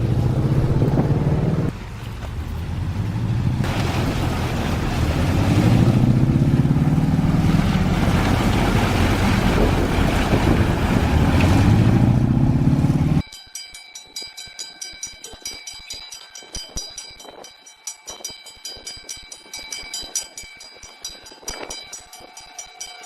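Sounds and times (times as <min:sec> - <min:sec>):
heavy engine running: 0:00.0 - 0:13.2.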